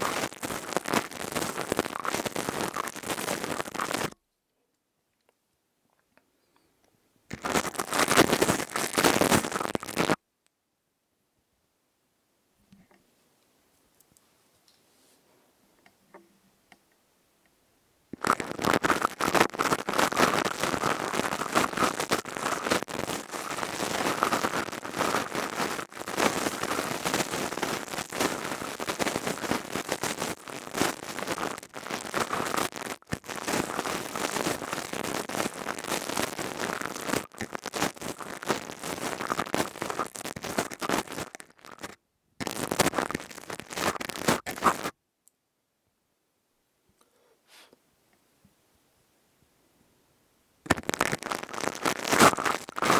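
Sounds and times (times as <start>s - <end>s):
crystal tube crackling and scraping: 0.0s - 4.2s, 7.3s - 10.2s, 18.2s - 44.9s, 50.7s - 52.9s.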